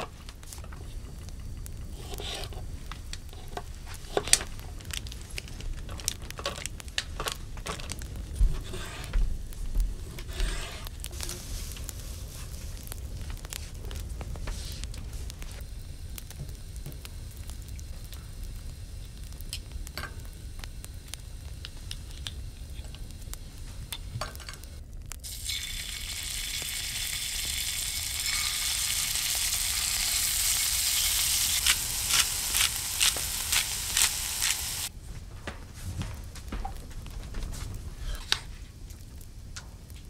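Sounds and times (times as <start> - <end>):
sharp popping of frying food: 0.0 - 34.9
food sizzling in a pan: 10.1 - 12.8, 14.5 - 34.9.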